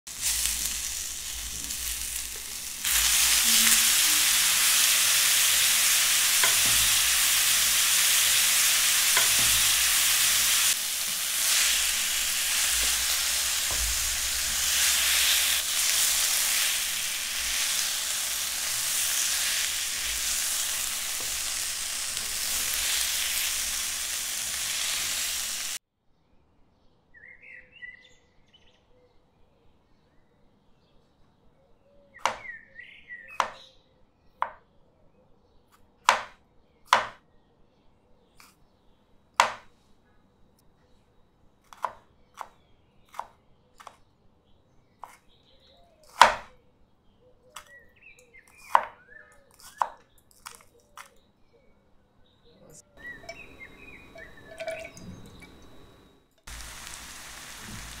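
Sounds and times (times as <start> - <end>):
prawns sizzling in oil: 0.1 - 25.8, 53.0 - 58.0.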